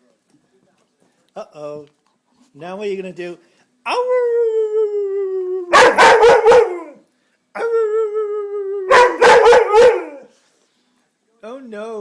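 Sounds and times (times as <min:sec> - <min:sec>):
puppy howling: 0:03.9 - 0:07.0, 0:07.6 - 0:10.3
puppy barking: 0:05.7 - 0:07.0, 0:08.9 - 0:10.3.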